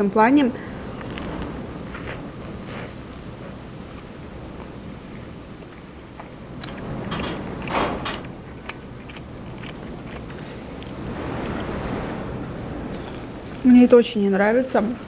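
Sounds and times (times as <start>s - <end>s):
person chewing food: 8.4s - 11.7s.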